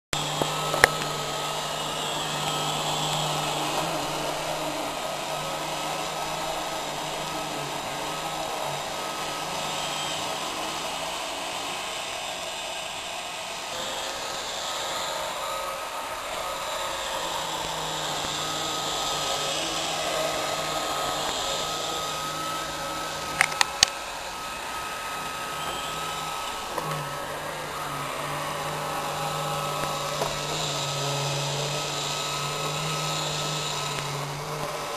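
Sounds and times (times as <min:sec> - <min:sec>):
robot vacuum whirring: 0:00.2 - 0:34.9
sharp clicks: 0:23.3 - 0:24.1.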